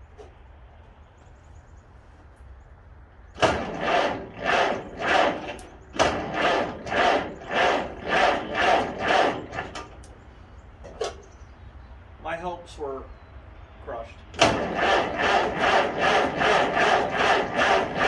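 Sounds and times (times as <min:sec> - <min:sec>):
starter cranking tractor engine: 0:03.4 - 0:10.2, 0:14.3 - 0:18.0.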